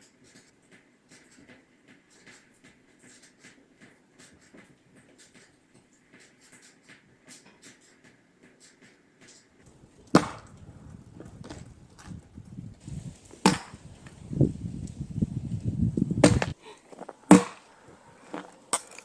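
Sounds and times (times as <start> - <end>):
scratchy rustling and ticks: 0.0 - 19.0
axe splitting log: 10.0 - 10.7, 13.4 - 13.8, 16.2 - 17.7.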